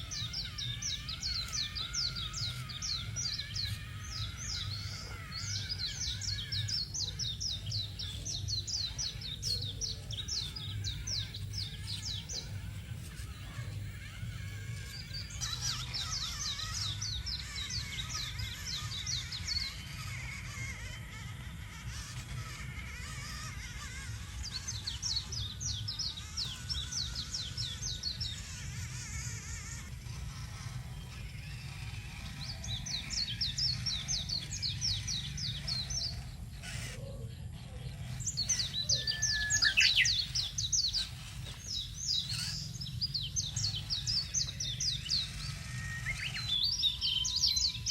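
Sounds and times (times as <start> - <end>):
bird chirping rapidly: 0.0 - 47.9
steady low hum: 0.0 - 47.9
bird singing high notes: 38.2 - 47.9.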